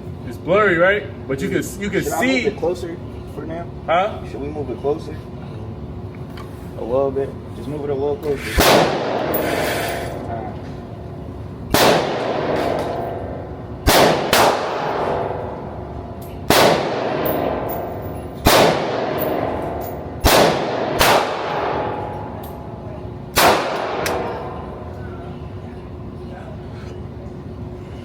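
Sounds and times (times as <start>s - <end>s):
echoing gunshots: 8.6s - 9.4s, 11.7s - 15.4s, 16.5s - 17.8s, 18.4s - 22.0s, 23.4s - 24.5s.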